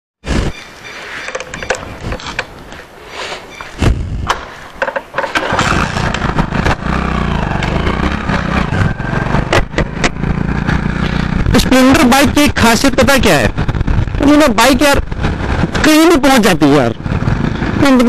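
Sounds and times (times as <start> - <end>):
clicks and knocks: 1.2 - 2.5, 4.3 - 5.6
motorcycle engine putter: 1.2 - 2.6, 4.2 - 7.8, 9.4 - 10.4.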